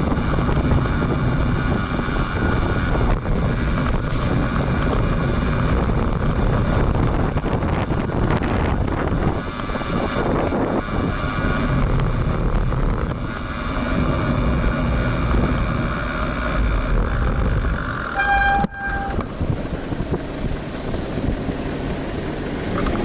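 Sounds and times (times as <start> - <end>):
road noise: 0.0 - 23.0
wind buffeting microphone: 0.0 - 23.0
horn toot: 18.0 - 19.4.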